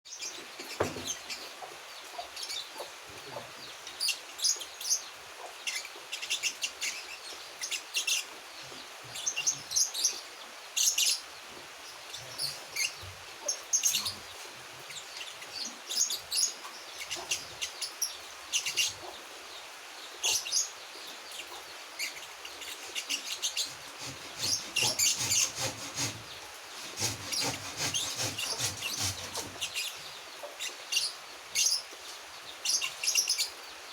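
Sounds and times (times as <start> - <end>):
young songbird chirping and twittering: 11.9 - 25.5, 28.4 - 33.8.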